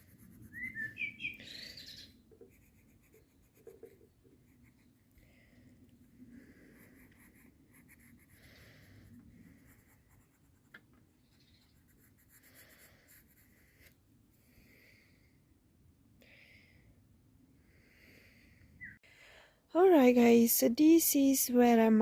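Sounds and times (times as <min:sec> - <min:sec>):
pencil scratching on paper: 0:00.0 - 0:00.6, 0:02.4 - 0:05.1, 0:06.6 - 0:10.9, 0:11.6 - 0:13.9.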